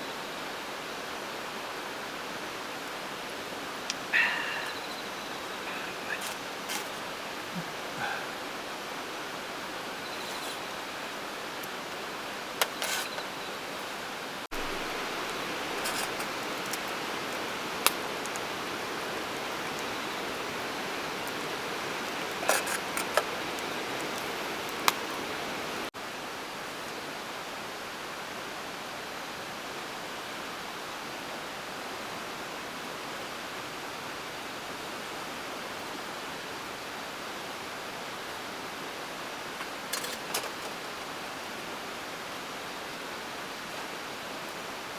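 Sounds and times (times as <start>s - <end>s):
running water: 0.0s - 25.9s.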